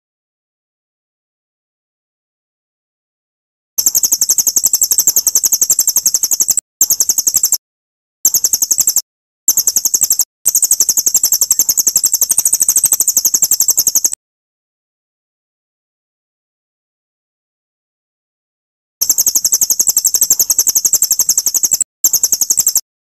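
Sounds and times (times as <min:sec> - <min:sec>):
songbird trilling: 0:03.8 - 0:07.6, 0:08.3 - 0:14.2, 0:19.0 - 0:22.8.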